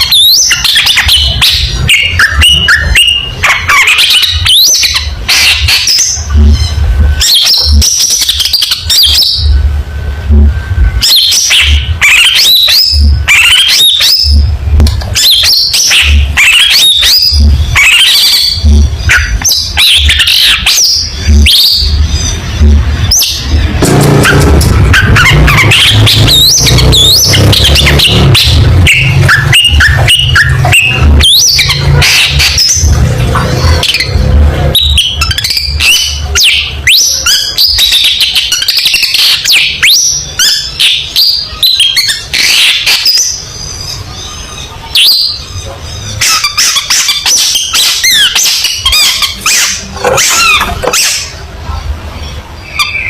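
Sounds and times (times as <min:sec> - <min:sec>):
bird singing loudly: 0:00.0 - 0:09.6, 0:15.1 - 0:51.4, 0:52.6 - 0:53.0
low rumble: 0:21.2 - 0:34.9.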